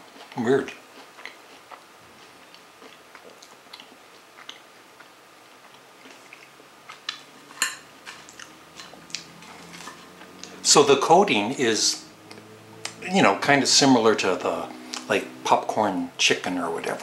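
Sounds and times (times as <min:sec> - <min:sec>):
quiet chewing: 0:00.0 - 0:07.3, 0:08.0 - 0:10.6.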